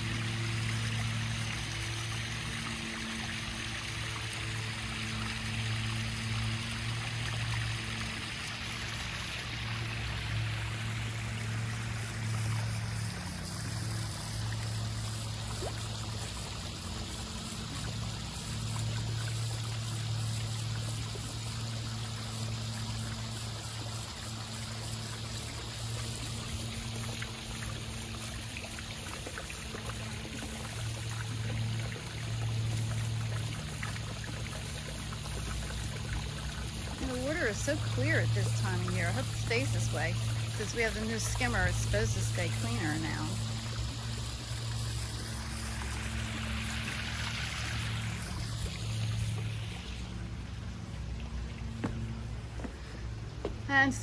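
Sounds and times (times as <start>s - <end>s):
water trickling into a pond: 0.0s - 54.0s
low hum: 30.1s - 54.0s.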